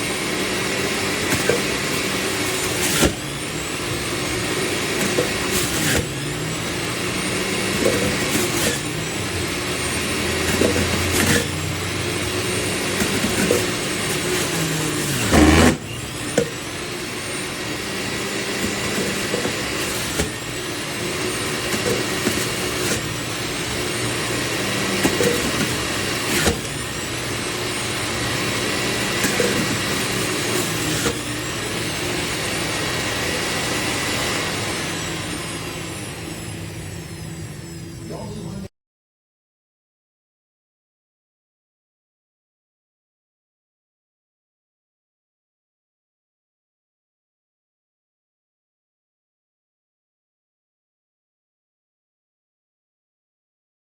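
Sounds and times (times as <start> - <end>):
juice extractor motor running: 0.0 - 38.7.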